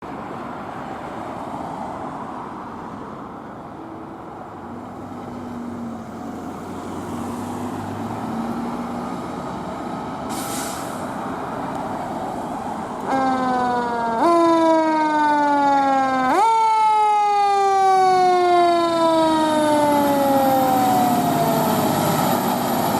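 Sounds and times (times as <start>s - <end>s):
air brake hiss: 10.3s - 11.2s
diesel engine running: 19.6s - 22.9s.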